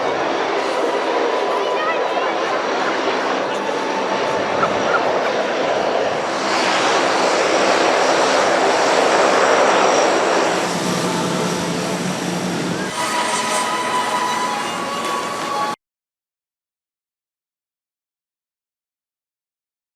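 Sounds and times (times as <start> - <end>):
aircraft engines rushing: 0.0 - 15.8
high steady whine: 2.8 - 15.8
steady hum: 4.2 - 15.8.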